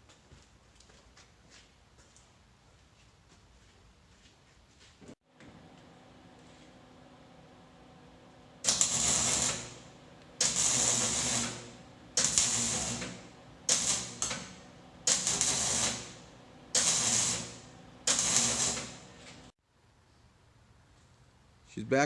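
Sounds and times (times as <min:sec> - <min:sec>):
pneumatic air tool bursts: 0:08.7 - 0:09.8, 0:10.4 - 0:19.1.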